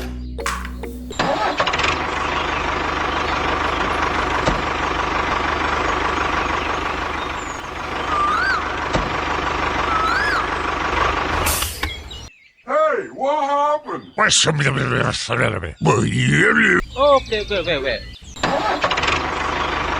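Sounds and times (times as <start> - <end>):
engine running: 0.0 - 12.3, 16.8 - 19.9.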